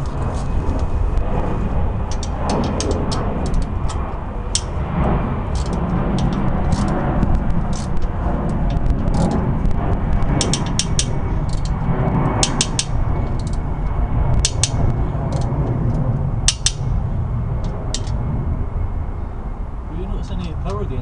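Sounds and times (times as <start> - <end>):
wind rumble on microphone: 0.0 - 21.0
hand tools clicking on metal: 2.1 - 4.8, 5.5 - 7.0, 7.6 - 9.4, 10.4 - 11.8, 12.4 - 13.6, 14.4 - 16.9, 17.9 - 18.2.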